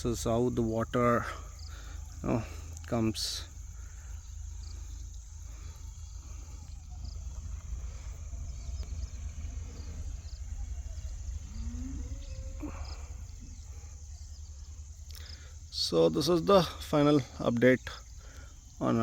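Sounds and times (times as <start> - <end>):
crickets chirring: 0.0 - 19.0
wind rumble on microphone: 3.6 - 15.1
short rising animal call: 5.7 - 14.0.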